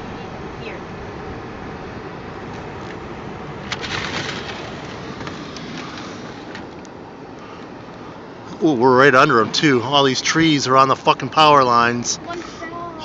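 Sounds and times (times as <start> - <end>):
car road and engine noise: 0.0 - 13.0
crackling burst: 2.5 - 8.0.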